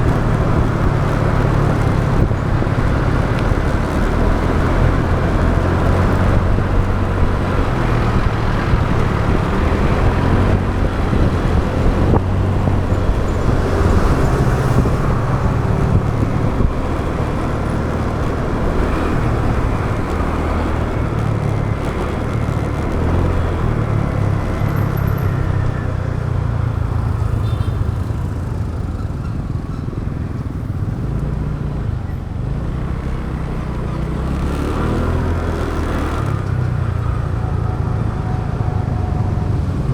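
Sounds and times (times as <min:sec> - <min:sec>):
wind rumbling over microphone: 0:00.0 - 0:26.1
motorbike engine: 0:00.0 - 0:39.9
road traffic: 0:00.0 - 0:39.9.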